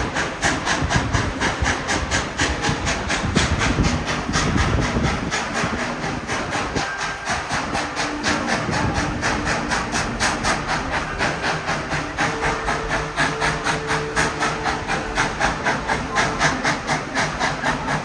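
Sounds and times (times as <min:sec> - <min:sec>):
steam locomotive chuffing: 0:00.0 - 0:18.0.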